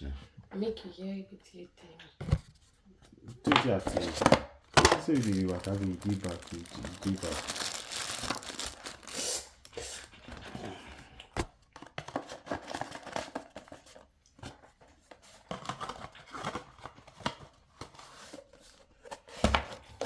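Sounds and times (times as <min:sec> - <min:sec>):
packaging rustling and crinkling: 0:03.6 - 0:14.1.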